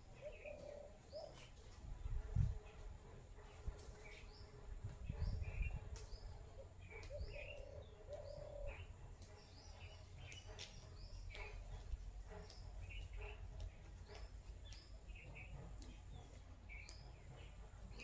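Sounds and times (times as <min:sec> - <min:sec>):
low two-part cooing call: 0:00.2 - 0:01.5, 0:07.0 - 0:08.8
low rumble on microphone: 0:01.4 - 0:07.5
small birds chirping: 0:03.8 - 0:18.0.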